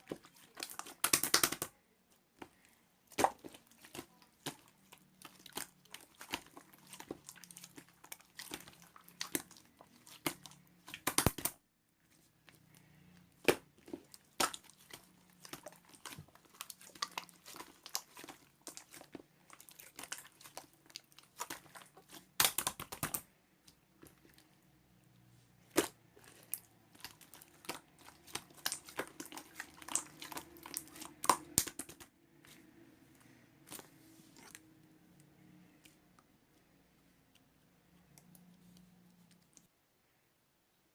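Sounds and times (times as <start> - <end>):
slime squished by hand: 0.0 - 1.8, 2.4 - 11.6, 12.4 - 24.6, 25.6 - 32.6.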